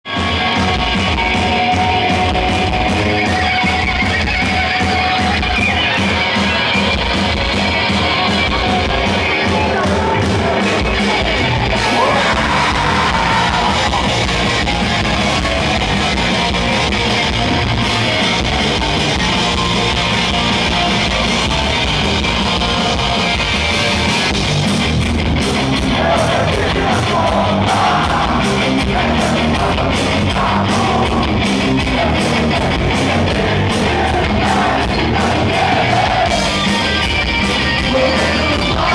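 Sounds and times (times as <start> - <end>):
punk band playing live: 0.0 - 38.9
shouted vocals: 9.1 - 16.0, 25.8 - 38.9.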